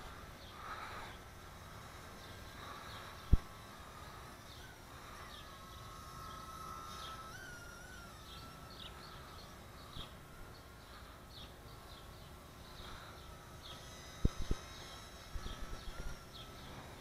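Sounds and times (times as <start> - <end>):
thin steady whine: 0.0 - 17.0
faint bird chirps: 2.0 - 17.0.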